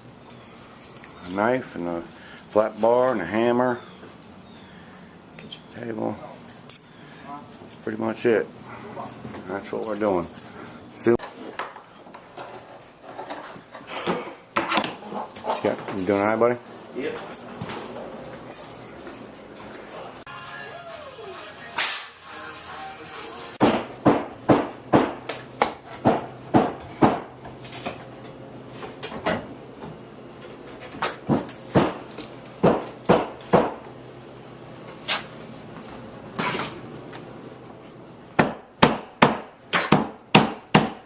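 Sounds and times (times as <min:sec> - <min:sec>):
hammer knocking on wood: 0:23.6 - 0:27.3.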